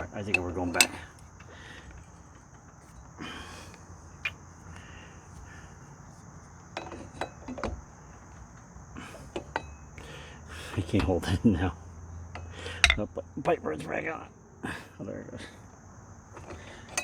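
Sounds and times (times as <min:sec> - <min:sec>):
hand tools tapping metal parts: 0:00.0 - 0:03.2, 0:06.7 - 0:07.8, 0:09.3 - 0:10.1, 0:12.3 - 0:14.0, 0:16.4 - 0:17.0
insect trilling: 0:00.0 - 0:06.7.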